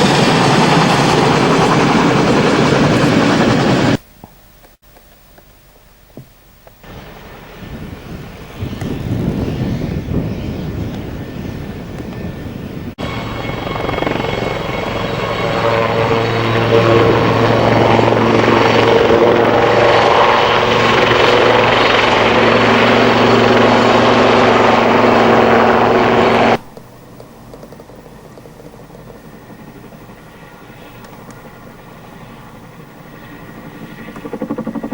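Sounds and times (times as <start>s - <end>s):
helicopter rotor and engine noise: 0.0s - 4.0s, 6.7s - 34.9s
steady low hum: 11.3s - 34.9s.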